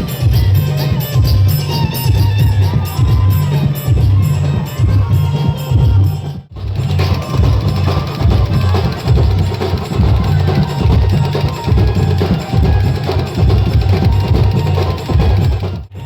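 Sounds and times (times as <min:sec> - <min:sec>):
clacking percussion: 0:00.0 - 0:16.0
music with heavy drum beat: 0:00.0 - 0:16.0.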